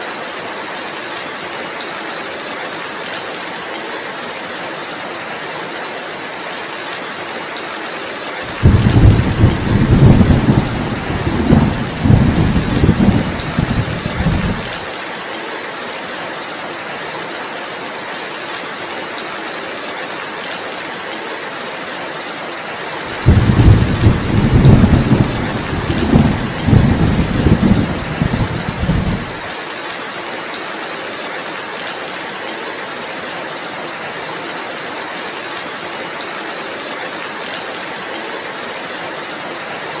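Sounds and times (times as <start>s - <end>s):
heavy rain: 0.0s - 40.0s
thunder rolling: 8.5s - 14.8s, 23.1s - 29.5s.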